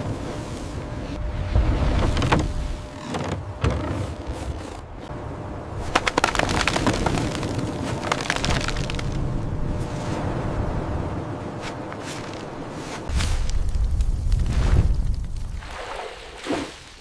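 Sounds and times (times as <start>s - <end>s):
steady noisy rumble: 0.0s - 15.5s
crackling and sharp cracks: 5.9s - 9.2s, 13.4s - 15.6s.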